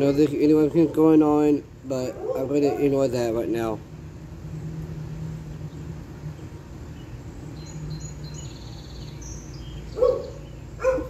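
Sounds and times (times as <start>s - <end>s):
small birds chirping: 0.0s - 3.8s, 4.5s - 11.0s.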